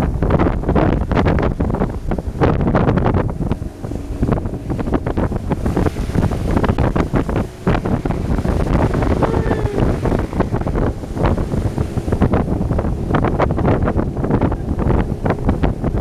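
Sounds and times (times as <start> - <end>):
faint outboard engine: 0.0 - 16.0
water rushing against hull: 0.0 - 16.0
wind buffeting microphone: 0.0 - 16.0.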